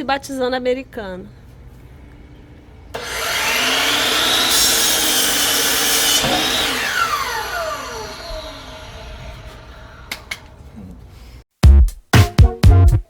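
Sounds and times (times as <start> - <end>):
power saw cutting wood: 3.0 - 10.3.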